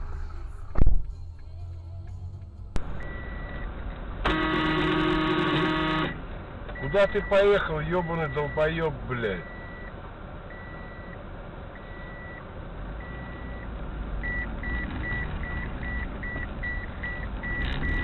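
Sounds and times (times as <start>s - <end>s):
car cabin rumble: 0.0s - 8.5s
car warning beeper: 2.8s - 3.7s, 4.3s - 9.9s, 10.5s - 11.2s, 11.8s - 12.4s, 13.0s - 18.0s.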